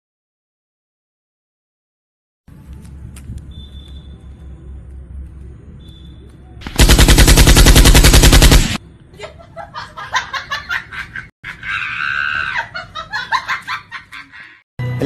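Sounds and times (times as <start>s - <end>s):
rapid machine-gun-like shots: 6.6s - 8.8s.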